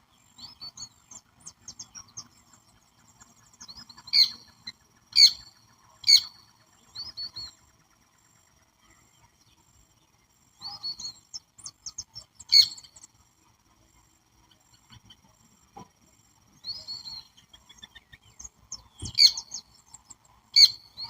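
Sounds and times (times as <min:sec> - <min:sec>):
birds chirping: 0:00.1 - 0:13.2, 0:16.5 - 0:21.0
birds calling loudly: 0:00.4 - 0:07.6, 0:16.6 - 0:21.0.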